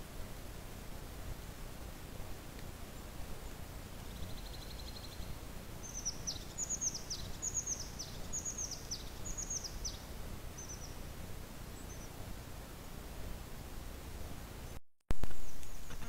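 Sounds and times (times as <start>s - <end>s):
low steady rumble: 0.0s - 15.8s
songbird singing trills: 2.9s - 11.0s, 11.8s - 12.2s.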